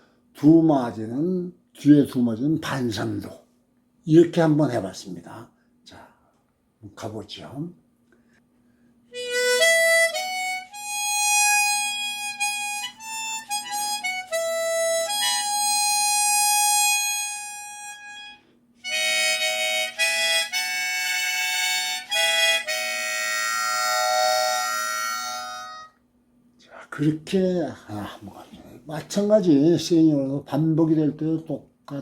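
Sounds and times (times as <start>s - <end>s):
harmonica playing: 9.1s - 26.0s.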